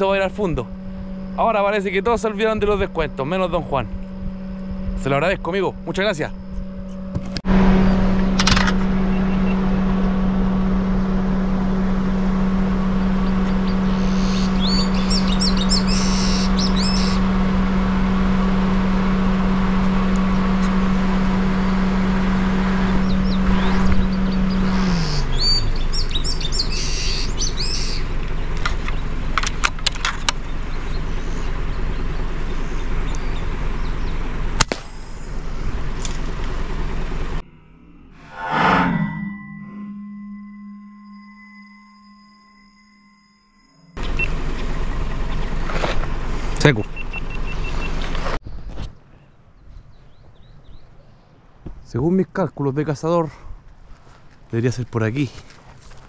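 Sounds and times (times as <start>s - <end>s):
car engine humming: 0.0s - 48.4s
birds chirping: 13.0s - 17.2s, 22.9s - 28.1s.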